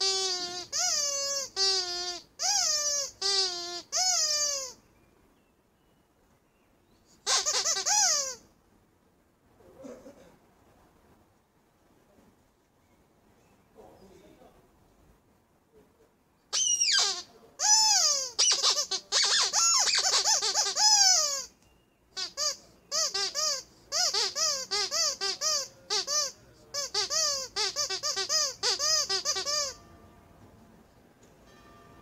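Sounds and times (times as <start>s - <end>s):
rubber squeak toy squeaking: 0.0s - 4.8s, 7.2s - 8.5s, 16.5s - 21.6s, 22.2s - 29.8s.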